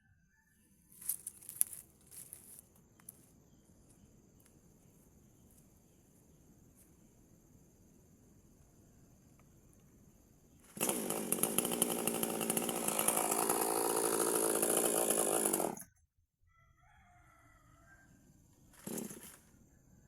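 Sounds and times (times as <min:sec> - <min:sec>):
rooster crowing: 0:00.1 - 0:00.7, 0:16.5 - 0:18.3
chainsaw running at high revs: 0:10.7 - 0:15.8, 0:18.8 - 0:19.4.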